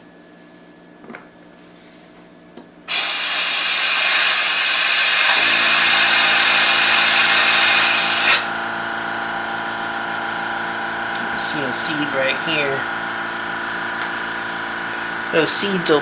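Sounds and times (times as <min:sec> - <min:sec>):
compressed air hissing from hose: 0:02.9 - 0:08.5
air compressor motor humming: 0:02.9 - 0:16.0.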